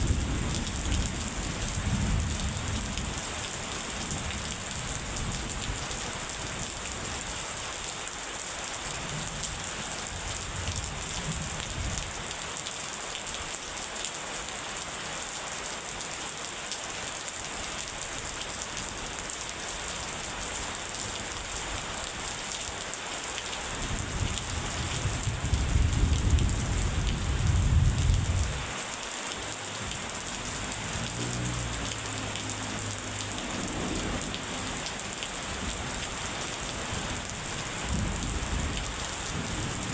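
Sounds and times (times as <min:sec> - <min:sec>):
heavy rain falling: 0:00.0 - 0:39.9
thunder rumbling: 0:24.2 - 0:28.7.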